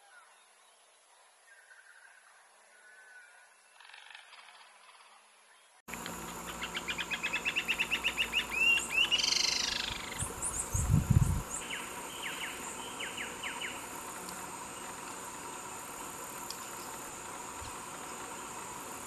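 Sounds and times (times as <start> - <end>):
bird song: 0.0 - 14.0
steady outdoor hiss: 0.0 - 19.0.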